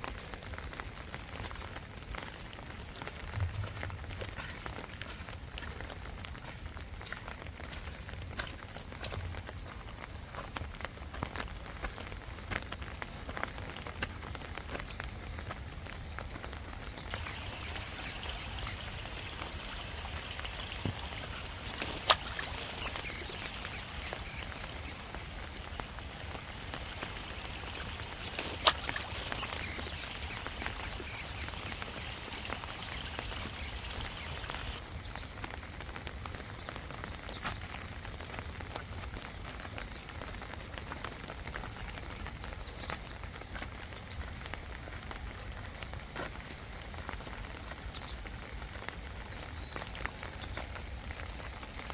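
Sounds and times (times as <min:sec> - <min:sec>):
steady rain: 0:00.0 - 0:51.9
bird high piercing notes: 0:17.1 - 0:19.0, 0:21.8 - 0:34.8.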